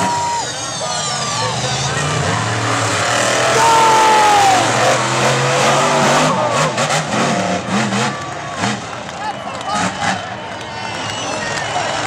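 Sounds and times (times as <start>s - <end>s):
monster truck engines racing: 0.0s - 12.0s.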